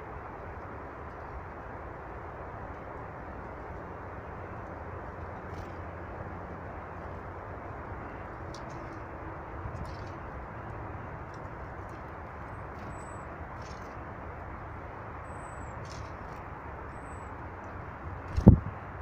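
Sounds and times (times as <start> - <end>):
low background rush: 0.0 - 19.0
high songbird calls: 11.8 - 14.0, 15.2 - 17.5.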